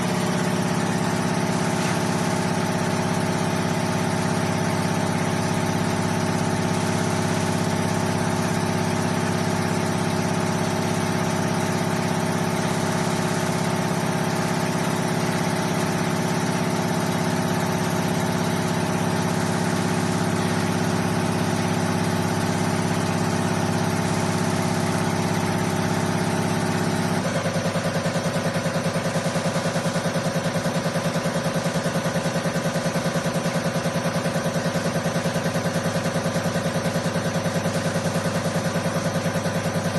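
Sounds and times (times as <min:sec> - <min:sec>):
test bench mechanical hum: 0:00.0 - 0:07.3.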